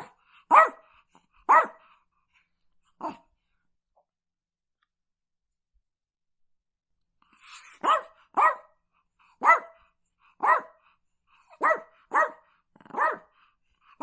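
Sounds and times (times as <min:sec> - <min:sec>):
dog barking: 0:00.0 - 0:01.9, 0:07.6 - 0:08.8, 0:09.4 - 0:10.9, 0:11.5 - 0:13.4.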